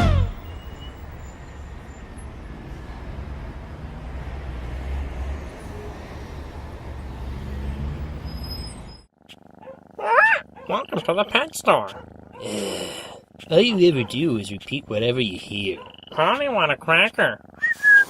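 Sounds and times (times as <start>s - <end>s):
rumble of passing vehicles: 0.0s - 10.6s.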